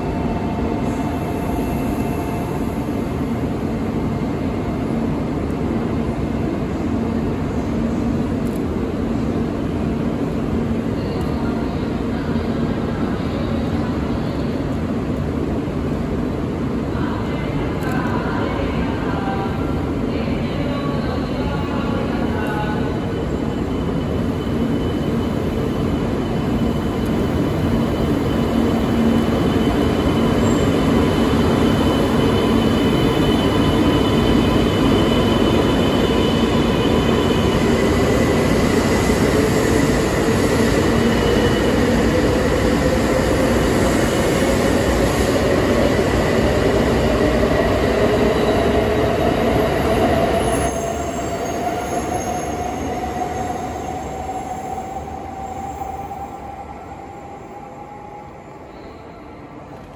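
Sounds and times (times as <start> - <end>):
train wheels rumbling on rail: 0.0 - 58.3.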